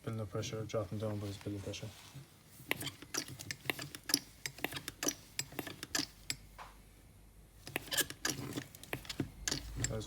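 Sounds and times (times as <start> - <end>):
hand pump clicking: 2.7 - 6.4, 7.6 - 10.0.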